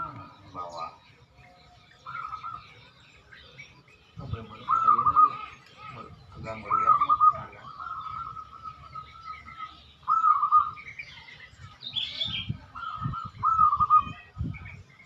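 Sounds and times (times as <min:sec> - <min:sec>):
small birds chirping: 0:00.0 - 0:15.0
dove cooing: 0:02.0 - 0:03.0, 0:04.5 - 0:10.8, 0:12.8 - 0:14.2.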